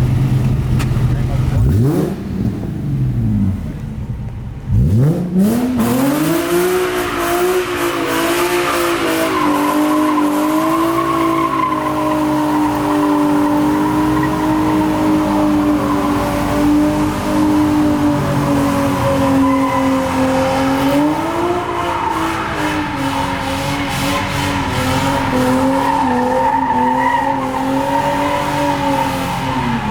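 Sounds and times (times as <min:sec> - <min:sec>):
car engine revving: 0:00.0 - 0:29.9
tyres squealing on pavement: 0:07.0 - 0:29.9.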